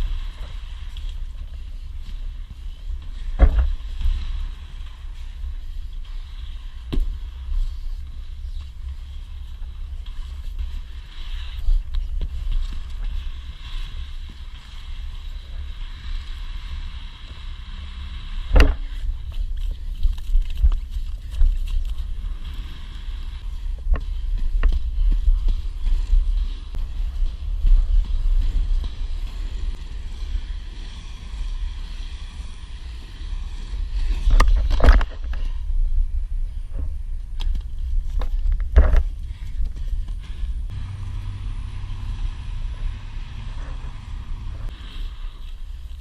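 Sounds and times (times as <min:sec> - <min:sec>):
skate wheels rolling on wet pavement: 0:00.0 - 0:34.8.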